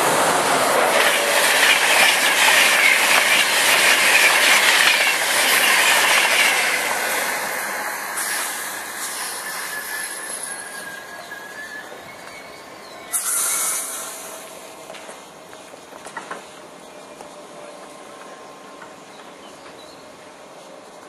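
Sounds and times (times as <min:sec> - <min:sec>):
passenger train passing: 0:00.0 - 0:21.0
high squealing hiss: 0:00.6 - 0:14.5.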